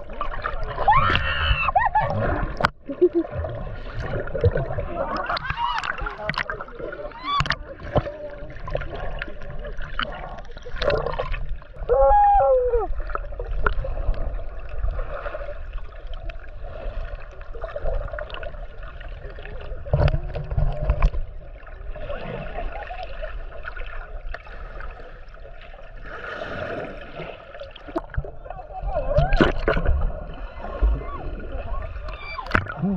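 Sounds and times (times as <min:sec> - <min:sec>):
water sloshing and gurgling: 0:00.0 - 0:32.9.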